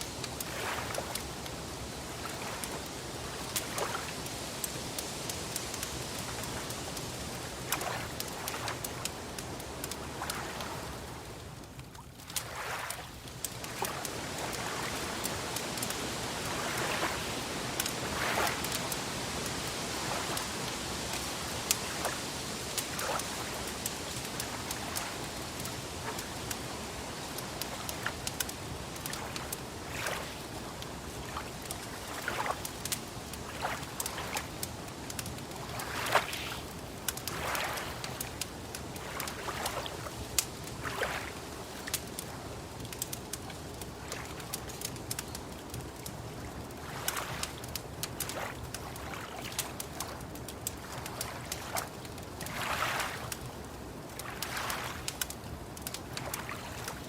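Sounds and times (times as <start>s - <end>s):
wood fire crackling: 0.0s - 57.0s
lake water lapping: 0.2s - 57.0s
steady hiss: 13.1s - 49.0s.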